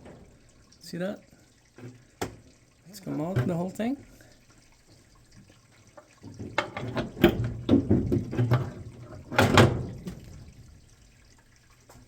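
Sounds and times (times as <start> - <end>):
valve and fittings knocking and rattling: 1.7 - 2.5, 3.1 - 3.9, 5.9 - 10.6.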